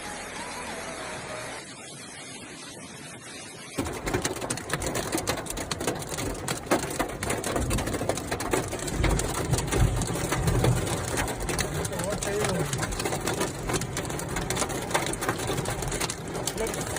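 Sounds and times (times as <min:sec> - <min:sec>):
hail clattering on hard surface: 0:03.8 - 0:16.9.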